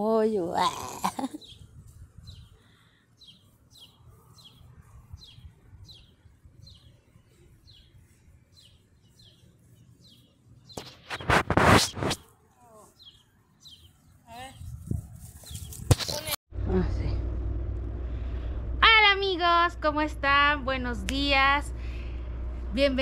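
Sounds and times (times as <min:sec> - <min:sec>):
faint low rumble: 0:16.5 - 0:23.0.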